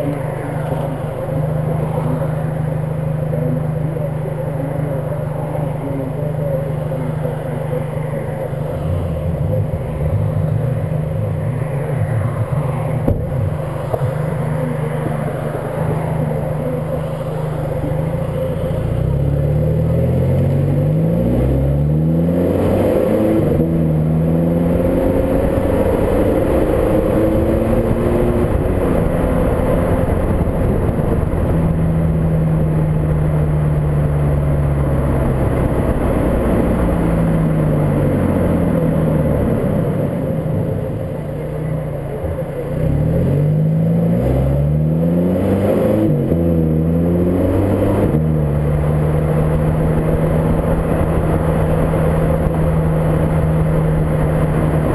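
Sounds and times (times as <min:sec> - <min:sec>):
car engine accelerating: 0:00.0 - 0:54.9
wind noise on microphone: 0:22.7 - 0:40.3, 0:47.3 - 0:54.9.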